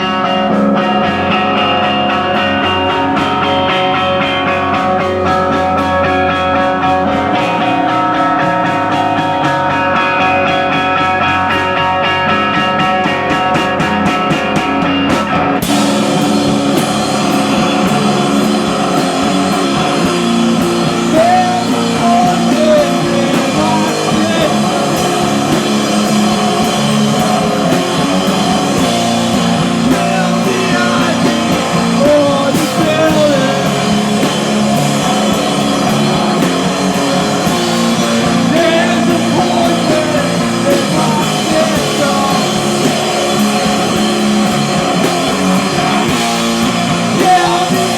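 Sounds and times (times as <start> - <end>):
drum kit: 0.0 - 47.9
electric guitar: 0.0 - 47.9.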